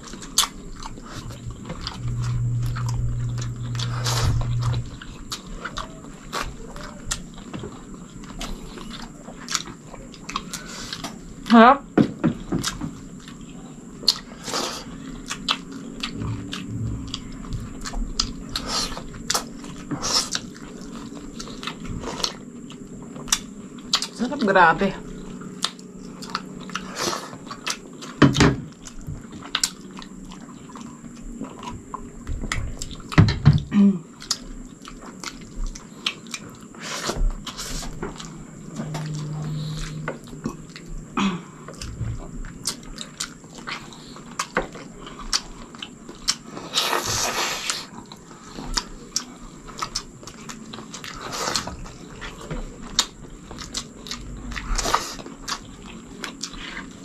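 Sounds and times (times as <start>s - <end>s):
low hum: 0.0s - 9.4s, 14.9s - 26.8s, 37.3s - 43.3s
wet chewing: 0.0s - 11.6s, 12.3s - 33.2s, 34.1s - 57.0s.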